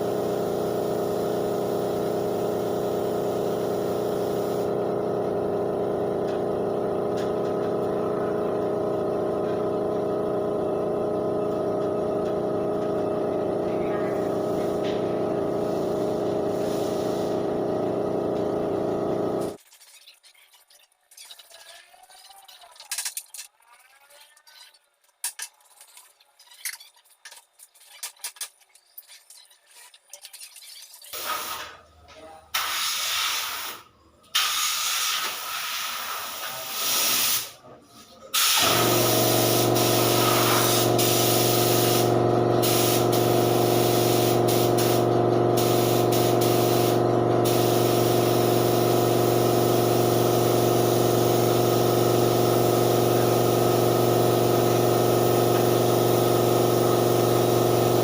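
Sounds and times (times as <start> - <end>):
paint spray gun air hiss: 0.0 - 5.0, 14.1 - 19.6, 31.2 - 31.7, 32.6 - 33.8, 34.4 - 37.6, 38.4 - 58.0
air compressor running: 0.0 - 19.6, 31.2 - 31.8, 32.6 - 37.6, 38.4 - 58.0.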